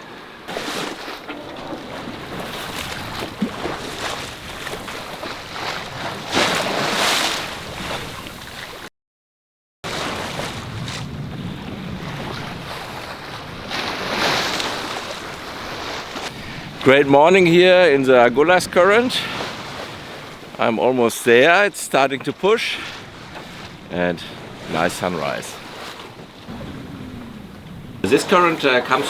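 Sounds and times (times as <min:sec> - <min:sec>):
water rushing past hull: 0:00.0 - 0:08.9, 0:09.9 - 0:29.0
waves surging: 0:09.9 - 0:29.0
wind buffeting microphone: 0:10.4 - 0:17.1, 0:23.0 - 0:29.0.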